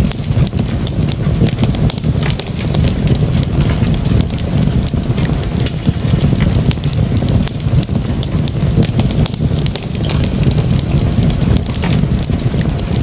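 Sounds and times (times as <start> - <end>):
fireplace fire crackling: 0.0 - 13.0.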